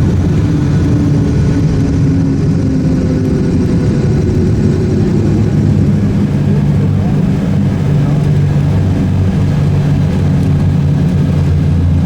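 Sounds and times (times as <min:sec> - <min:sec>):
aircraft engines and propellers droning: 0:00.0 - 0:12.0.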